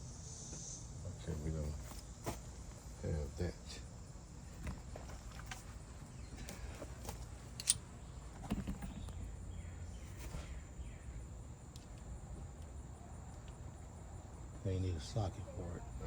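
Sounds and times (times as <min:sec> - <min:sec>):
high insect drone: 0:00.0 - 0:04.9.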